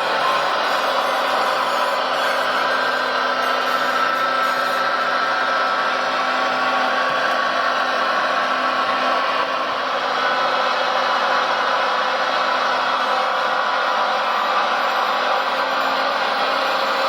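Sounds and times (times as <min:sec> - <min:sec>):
toy machine motor whirring: 0:00.0 - 0:05.2, 0:14.2 - 0:17.0.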